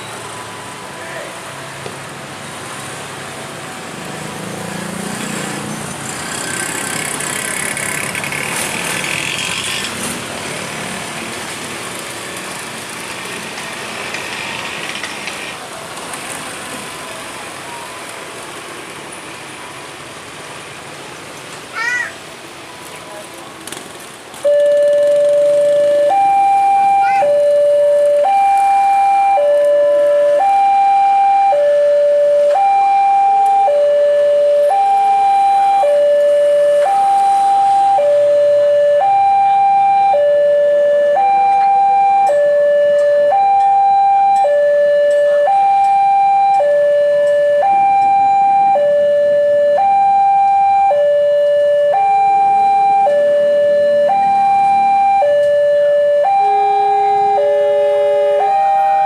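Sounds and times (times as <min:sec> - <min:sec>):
two-tone electronic alarm: 0:24.4 - 0:59.0.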